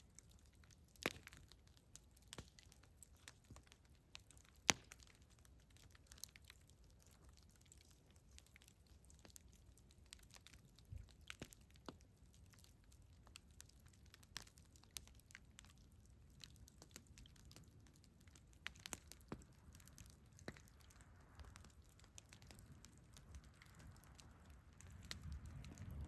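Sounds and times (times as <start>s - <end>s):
campfire crackling: 0.0s - 26.0s
low rumble: 24.8s - 26.0s.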